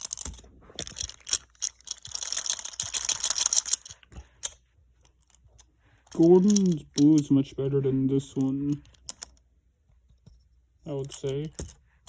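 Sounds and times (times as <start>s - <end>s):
toy trains clicking and tapping: 0.0s - 4.6s
rustling: 0.0s - 12.0s.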